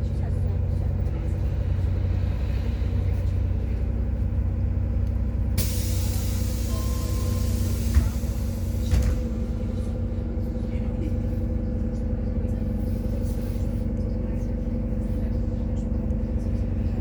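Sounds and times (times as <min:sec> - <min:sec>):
bus engine droning: 0:00.0 - 0:17.0
compressed air hissing: 0:05.6 - 0:08.9.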